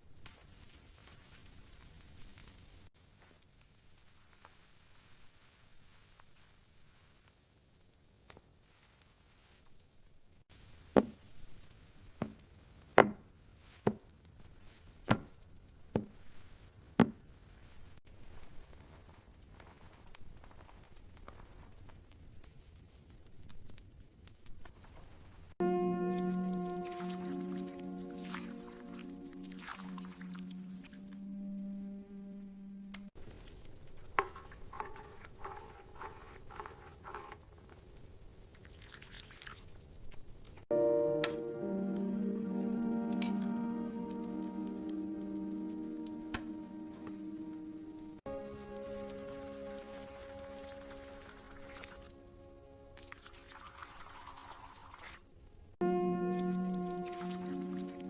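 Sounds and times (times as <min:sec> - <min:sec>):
light rain: 0:00.0 - 0:25.6, 0:26.2 - 0:30.9, 0:33.0 - 0:58.0.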